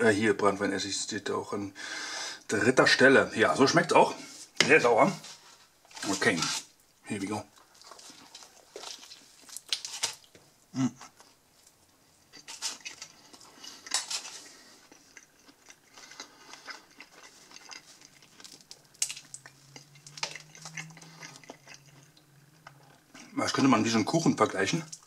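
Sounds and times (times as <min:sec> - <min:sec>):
low steady hum: 0:02.5 - 0:25.0
person chewing pizza: 0:07.5 - 0:23.4.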